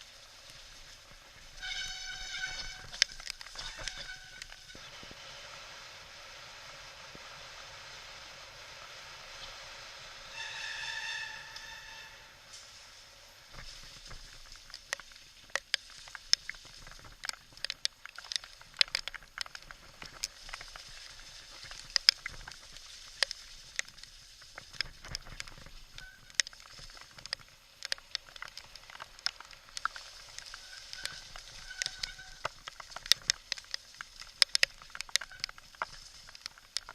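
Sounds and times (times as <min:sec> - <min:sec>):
bike tapping and clicking on rocks: 0:00.0 - 0:05.0, 0:13.5 - 0:36.9
heavy rain hiss: 0:00.0 - 0:36.9.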